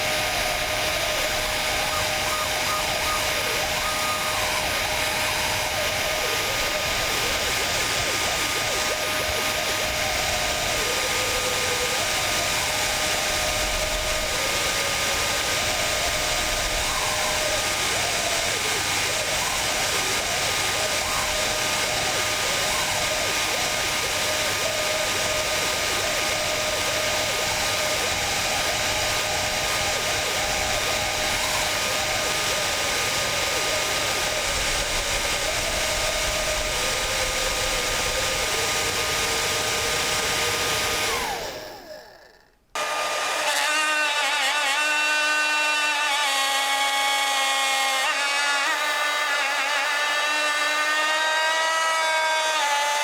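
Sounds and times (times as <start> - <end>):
hairdryer blowing: 0.0 - 45.6
small electric motor buzzing: 0.0 - 53.0.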